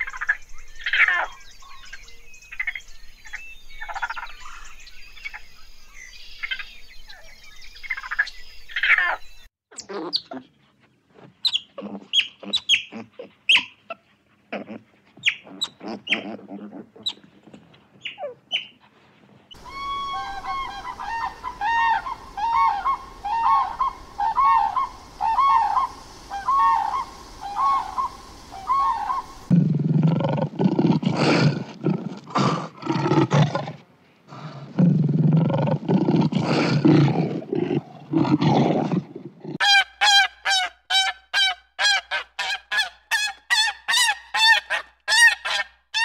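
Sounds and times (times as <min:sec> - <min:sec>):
otters chirping and squeaking: 0:11.4 - 0:13.8, 0:15.2 - 0:16.4, 0:18.0 - 0:18.8
crane trumpeting calls: 0:19.6 - 0:29.5.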